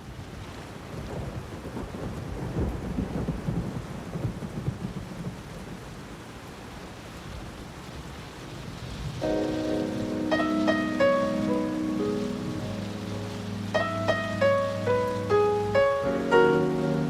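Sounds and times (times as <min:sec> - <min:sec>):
steady rain: 0:00.0 - 0:17.0
rolling thunder: 0:01.1 - 0:05.4, 0:09.0 - 0:17.0
held keyboard chord: 0:09.2 - 0:17.0.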